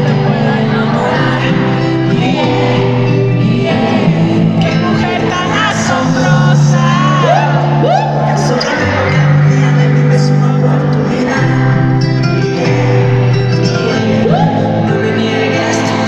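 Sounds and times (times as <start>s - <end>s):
person singing: 0.0s - 16.0s
pop-rock band music: 0.0s - 16.0s.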